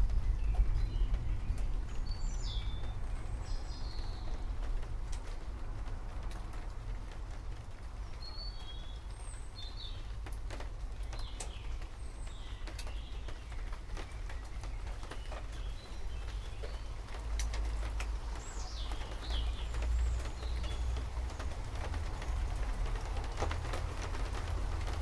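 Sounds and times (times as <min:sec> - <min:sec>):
small birds chirping: 0:00.3 - 0:04.5, 0:08.0 - 0:10.3, 0:11.0 - 0:22.8.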